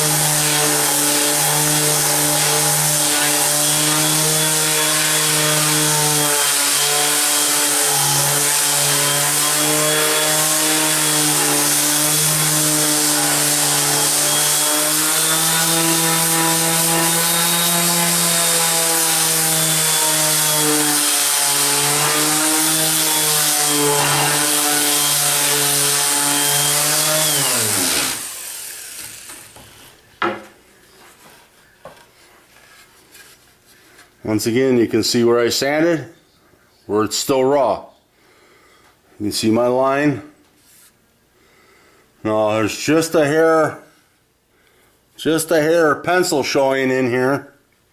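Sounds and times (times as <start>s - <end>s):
orbital sander on wood: 0.0s - 30.0s.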